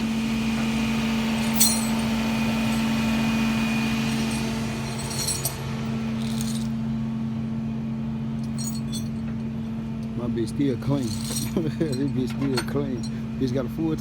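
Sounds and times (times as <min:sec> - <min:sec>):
light metallic clinks: 0:01.4 - 0:03.0, 0:04.0 - 0:06.8, 0:08.4 - 0:09.3, 0:11.0 - 0:13.2.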